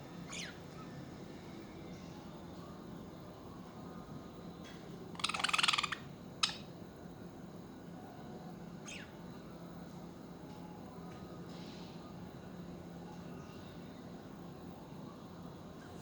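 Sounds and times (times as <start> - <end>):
budgerigar chattering and chirping: 0.3 - 0.6, 5.2 - 6.6, 8.9 - 9.1.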